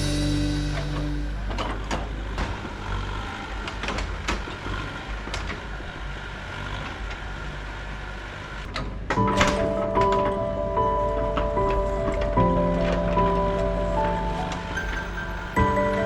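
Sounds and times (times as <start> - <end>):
low engine rumble: 0.0 - 3.8.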